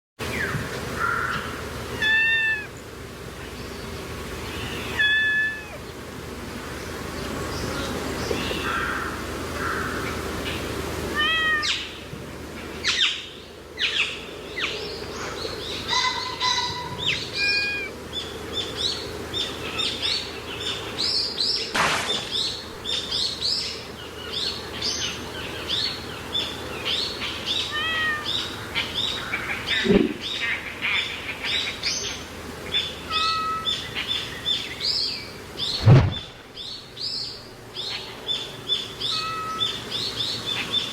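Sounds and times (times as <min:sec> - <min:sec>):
small birds chirping: 0:00.3 - 0:40.9
cat meowing: 0:02.0 - 0:02.7, 0:04.8 - 0:05.8, 0:11.2 - 0:11.9, 0:17.4 - 0:17.9, 0:27.6 - 0:28.4, 0:33.1 - 0:33.7, 0:39.0 - 0:39.8.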